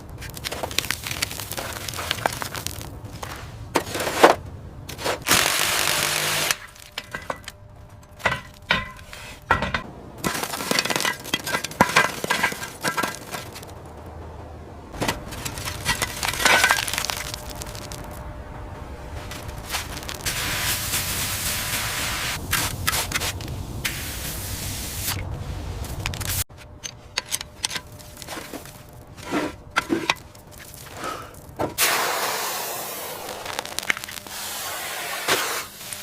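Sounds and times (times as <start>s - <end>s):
dense steady hiss: 0.0s - 36.0s
sharp knocks and scrapes: 3.1s - 5.3s, 6.2s - 13.8s, 15.0s - 18.1s, 25.8s - 31.9s.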